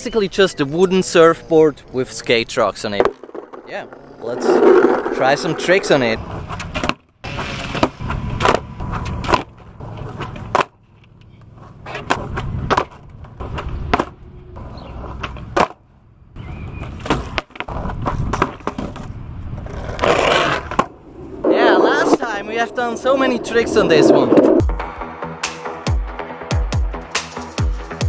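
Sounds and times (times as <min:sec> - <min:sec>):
skateboard wheels rolling on concrete: 0:00.3 - 0:25.0
skateboard popping and landing clacks: 0:02.9 - 0:14.2, 0:15.0 - 0:15.8, 0:16.8 - 0:22.3.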